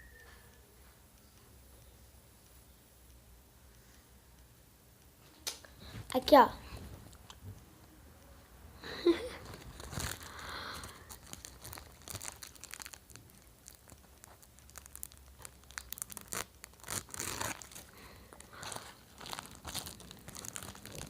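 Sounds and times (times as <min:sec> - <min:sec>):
wrappers crumpling and tearing: 0:09.1 - 0:21.0.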